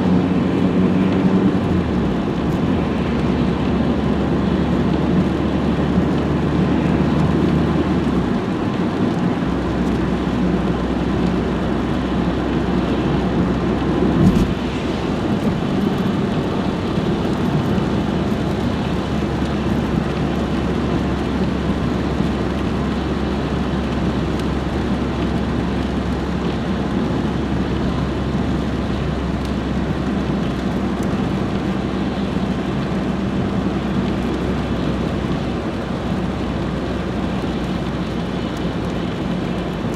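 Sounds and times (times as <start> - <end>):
road noise: 0.0 - 39.9
car engine running: 6.8 - 24.2.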